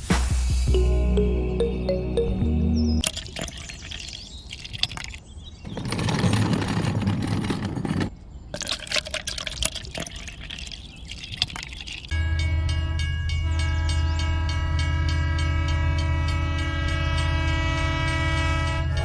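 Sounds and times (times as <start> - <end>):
music: 0.0 - 3.0
liquid pouring and splashing: 3.0 - 5.3, 8.5 - 12.1.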